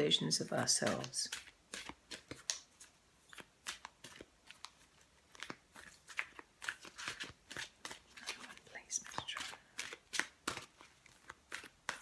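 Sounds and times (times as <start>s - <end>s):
cards being shuffled: 0.7s - 12.0s.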